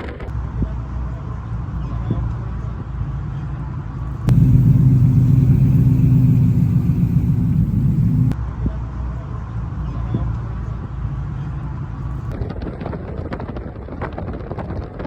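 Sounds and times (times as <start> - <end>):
car engine low rumble: 4.3 - 8.4
loud deep engine: 4.3 - 8.4.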